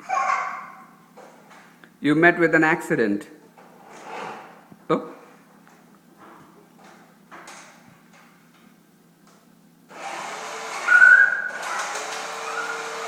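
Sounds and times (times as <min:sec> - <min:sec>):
small electric motor whirring: 0:09.9 - 0:13.0
brief high whistling tone: 0:10.8 - 0:12.8.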